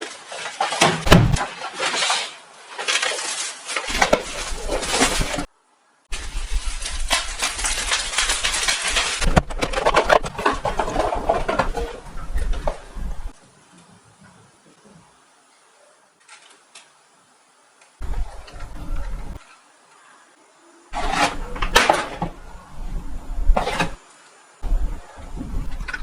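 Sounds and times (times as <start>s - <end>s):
packaging rustling and crinkling: 0.0s - 5.5s, 6.1s - 13.1s.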